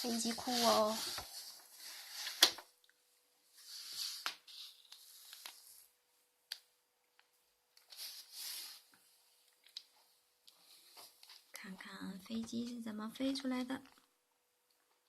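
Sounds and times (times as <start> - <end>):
soft rustling: 0.0 - 2.7, 7.8 - 11.9.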